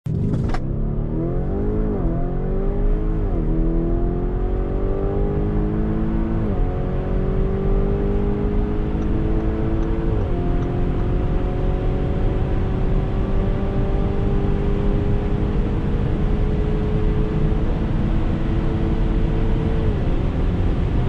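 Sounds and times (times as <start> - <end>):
car engine accelerating: 0.1 - 21.0.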